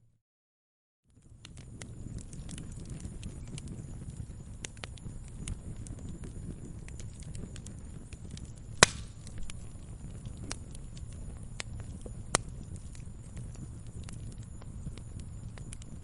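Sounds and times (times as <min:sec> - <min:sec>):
fire crackles: 0:01.1 - 0:16.0
rumble of flames: 0:01.1 - 0:16.0
loud sharp pops: 0:08.8 - 0:09.3.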